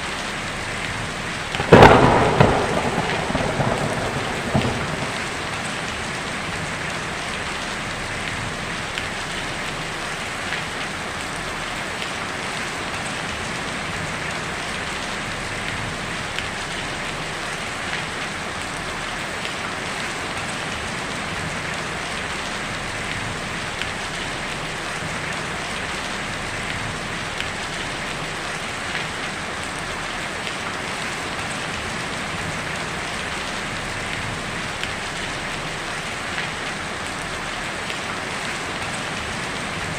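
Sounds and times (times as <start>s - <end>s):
heavy rain on a tin roof: 0.0s - 39.9s
sharp raindrop taps: 0.8s - 9.8s.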